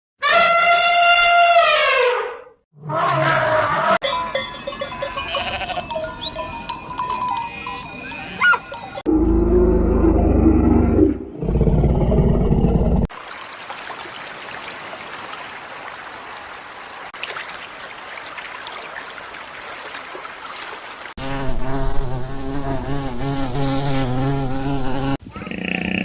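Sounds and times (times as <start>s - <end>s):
close insect buzz wavering: 21.2s - 25.2s.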